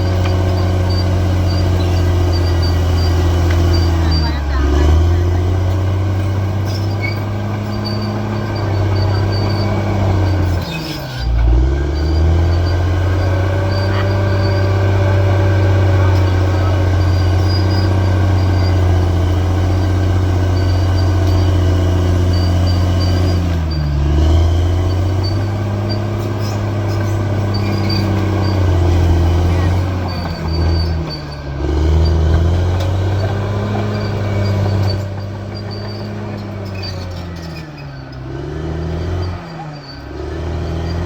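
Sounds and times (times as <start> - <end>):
bulldozer diesel engine running: 0.0 - 41.0.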